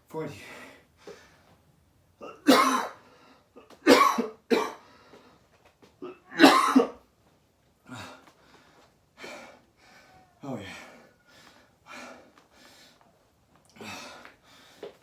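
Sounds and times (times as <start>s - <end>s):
man coughing: 2.2s - 3.0s, 3.8s - 4.8s, 6.0s - 7.0s
man breathing hard: 7.8s - 13.1s, 13.7s - 15.0s.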